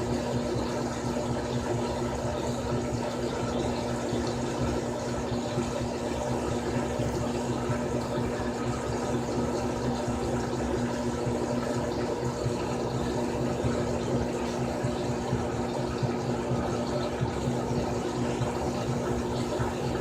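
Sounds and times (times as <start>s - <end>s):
washing machine motor hum: 0.0s - 20.0s
water sloshing in washer: 0.0s - 20.0s.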